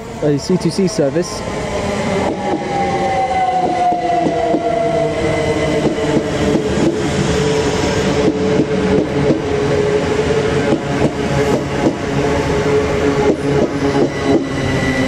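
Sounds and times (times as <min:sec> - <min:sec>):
traction motor whine: 0:01.4 - 0:08.6.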